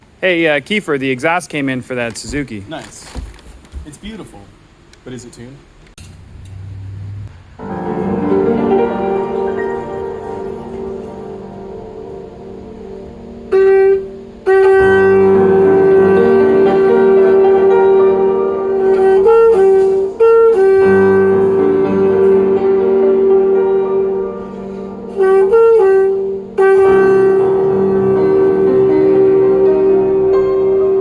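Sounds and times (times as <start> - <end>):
lower accompanying tone: 6.0 - 31.0
saxophone-like horn tone: 6.6 - 31.0.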